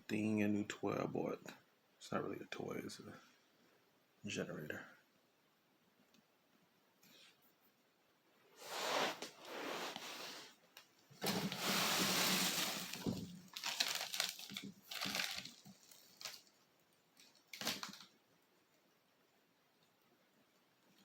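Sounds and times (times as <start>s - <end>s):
rustling and handling noises: 8.6s - 18.9s.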